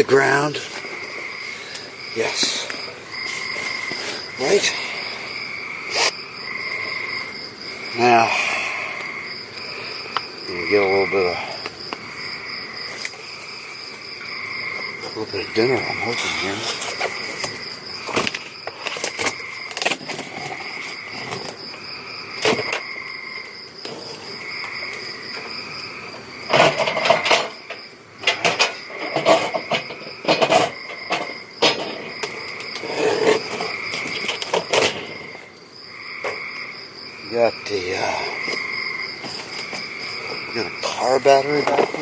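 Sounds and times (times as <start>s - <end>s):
high insect trill: 0.0s - 42.0s
pulsing insect chirp: 0.0s - 42.0s.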